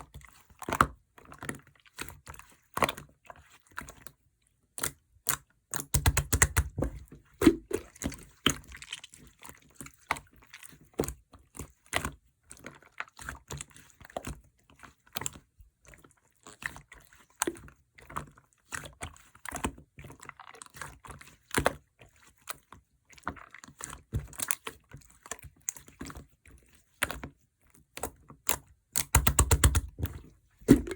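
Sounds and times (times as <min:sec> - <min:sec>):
slime squished by hand: 0:05.7 - 0:09.3, 0:29.0 - 0:30.9.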